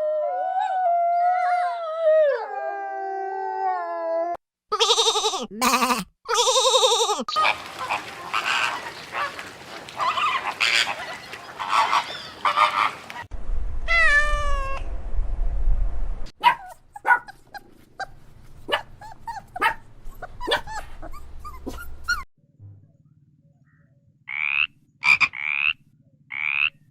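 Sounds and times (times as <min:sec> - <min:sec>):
domestic animal calls: 0:04.7 - 0:13.3
long falling animal call: 0:04.7 - 0:13.3.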